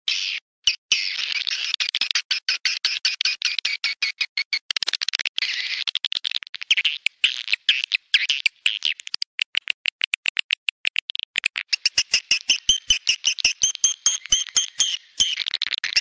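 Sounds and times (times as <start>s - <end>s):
swiftlets clicking and chirping: 4.6s - 16.0s.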